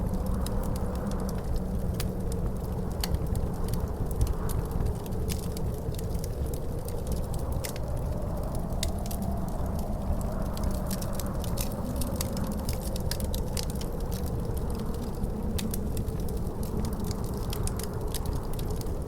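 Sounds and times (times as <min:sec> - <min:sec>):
wind rumbling and howling: 0:00.0 - 0:19.0
wood fire crackling: 0:00.0 - 0:19.0.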